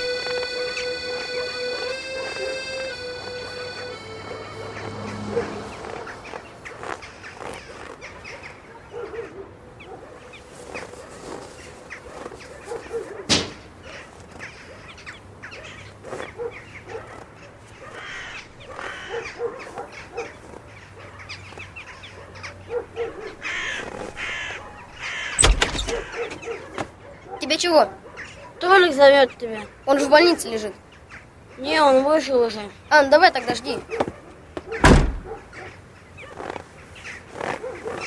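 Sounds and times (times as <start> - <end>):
crows cawing: 17.9 - 19.4, 23.3 - 26.4
loud thump: 34.8 - 35.3.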